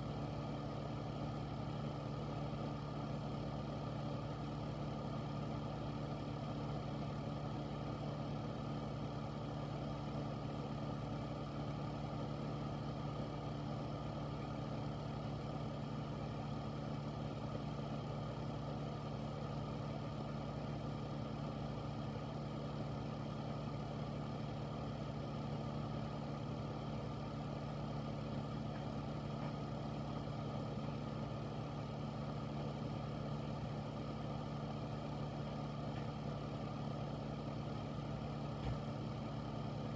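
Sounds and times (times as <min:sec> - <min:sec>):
air filter fan running: 0:00.0 - 0:39.9.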